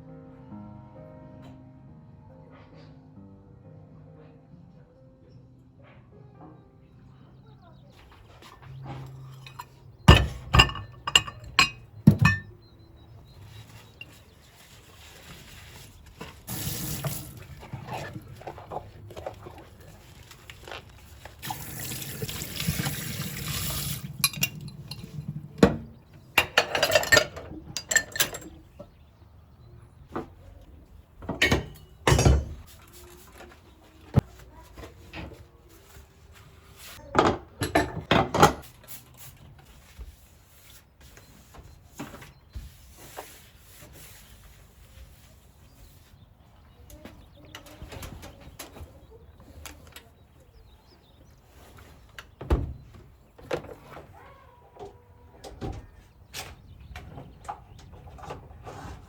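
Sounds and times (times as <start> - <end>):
glass and kitchenware clinking: 8.9 - 12.6, 23.8 - 25.8, 26.4 - 28.6, 31.3 - 32.6.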